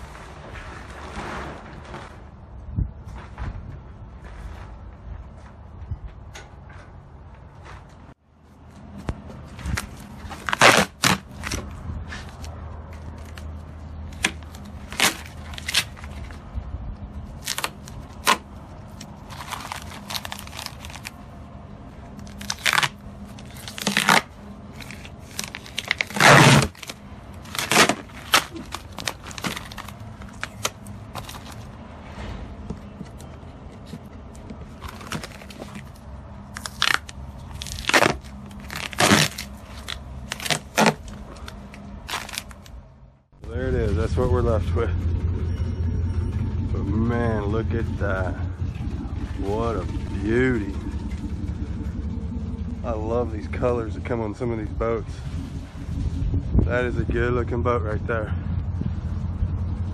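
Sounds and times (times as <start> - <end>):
plastic wrapping tearing: 9.7 - 11.7, 14.1 - 16.3, 17.3 - 21.2, 22.2 - 31.6, 34.8 - 42.7.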